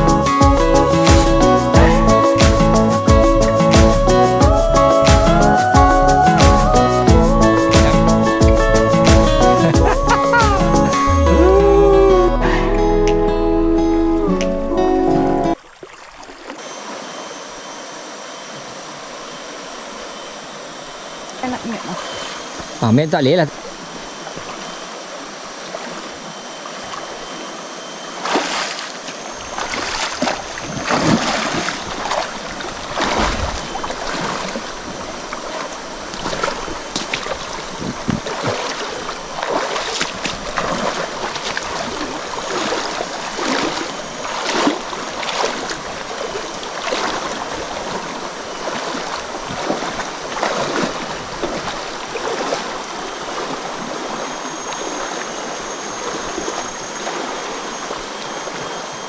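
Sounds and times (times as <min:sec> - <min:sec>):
shallow stream running: 0:00.0 - 0:59.0
splashes in water: 0:28.2 - 0:55.3.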